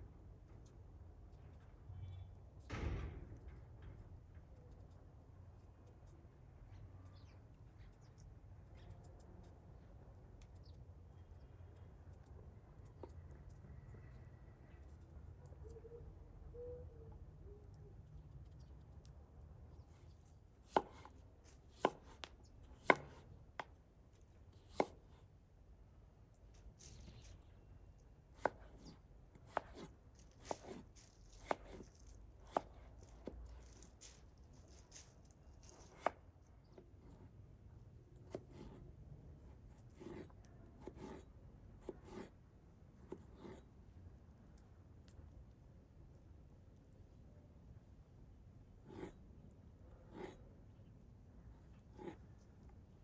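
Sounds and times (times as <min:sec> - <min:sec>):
sharp knock: 0:02.7 - 0:03.4
knife chopping on cutting board: 0:20.7 - 0:21.1, 0:22.8 - 0:23.2, 0:24.7 - 0:25.0, 0:28.4 - 0:30.8, 0:31.4 - 0:31.8.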